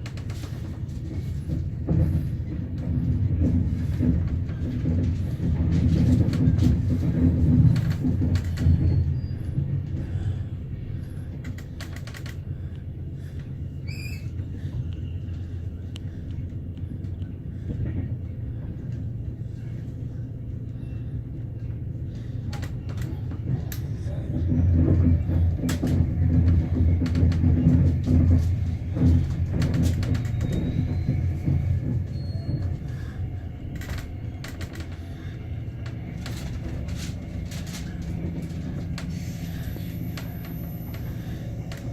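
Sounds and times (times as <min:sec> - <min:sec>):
train rumble inside coach: 0:00.0 - 0:41.9.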